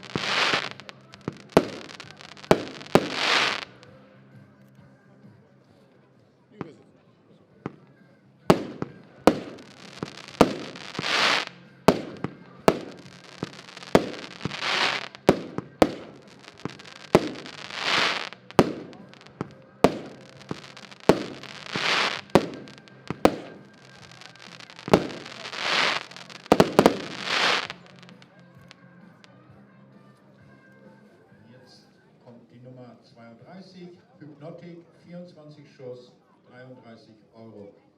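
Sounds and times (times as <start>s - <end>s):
crackling firework breaks: 0.0s - 3.8s, 8.5s - 28.7s
firework launch cracks: 0.0s - 3.8s, 8.5s - 28.7s.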